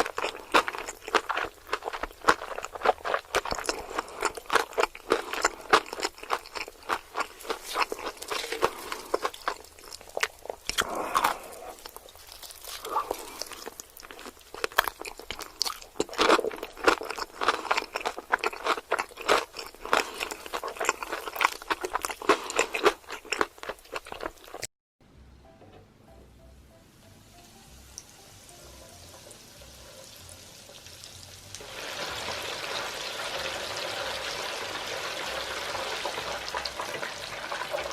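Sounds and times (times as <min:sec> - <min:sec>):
crunchy food being chewed: 0:00.0 - 0:24.7.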